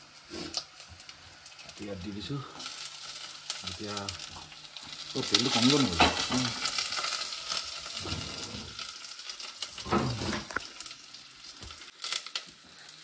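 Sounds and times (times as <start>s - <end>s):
onions sizzling in oil: 0.0s - 13.0s
spatula scraping and clanking pan: 4.3s - 8.9s.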